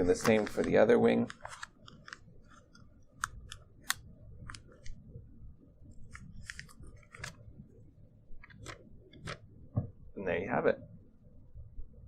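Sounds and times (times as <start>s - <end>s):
paper crackling and rustling: 0.0s - 2.8s, 6.2s - 7.4s.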